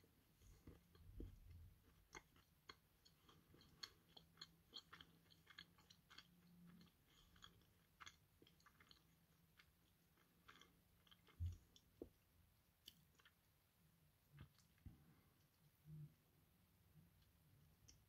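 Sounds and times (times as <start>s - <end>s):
wet chewing mouth clicks: 0.6s - 12.0s.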